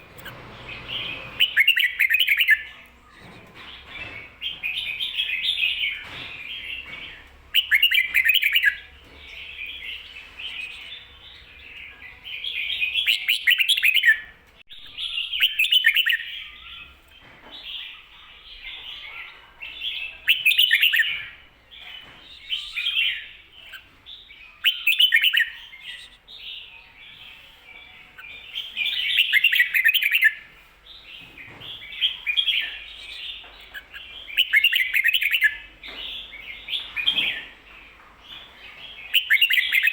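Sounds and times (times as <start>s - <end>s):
bulbul singing warbled phrases: 0.0s - 16.9s.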